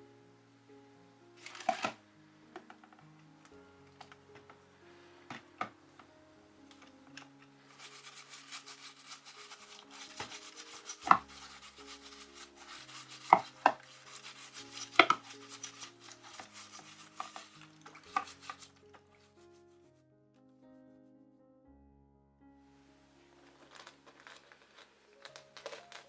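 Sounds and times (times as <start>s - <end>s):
background music: 0.0s - 26.0s
scratchy rubbing: 1.4s - 19.9s.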